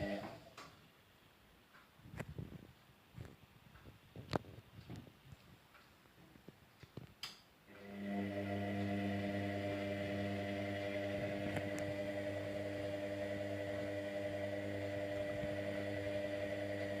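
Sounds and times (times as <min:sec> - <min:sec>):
washing machine humming: 0:00.0 - 0:00.4, 0:07.7 - 0:17.0.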